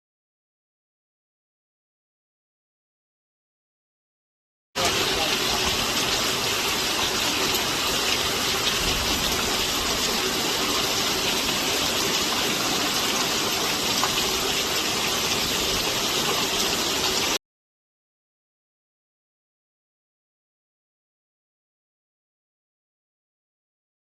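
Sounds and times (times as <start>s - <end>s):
rain falling: 4.8s - 17.4s.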